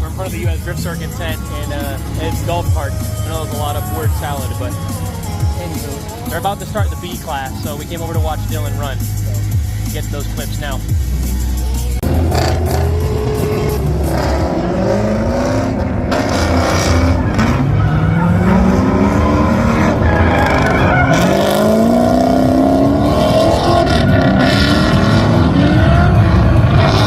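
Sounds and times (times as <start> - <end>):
tyres skidding: 0.0 - 27.0
car engine revving hard: 12.0 - 27.0.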